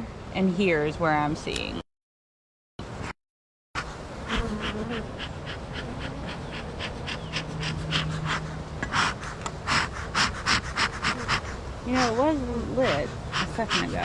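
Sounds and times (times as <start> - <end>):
bee smoker bellows puffing: 3.8 - 14.0
honey bees buzzing: 3.8 - 14.0.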